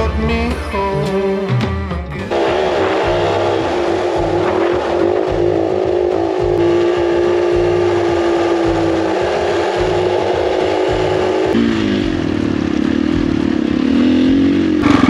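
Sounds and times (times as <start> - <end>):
dirt bike engine running: 2.2 - 15.0.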